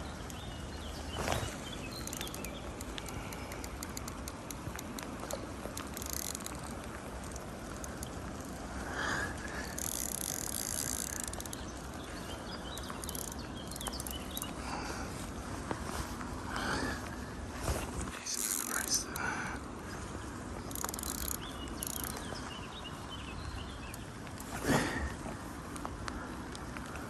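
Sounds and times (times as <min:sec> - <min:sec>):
outdoor background noise: 0:00.0 - 0:27.0
fishing reel ticking: 0:01.2 - 0:14.6, 0:18.2 - 0:19.4, 0:20.6 - 0:22.4.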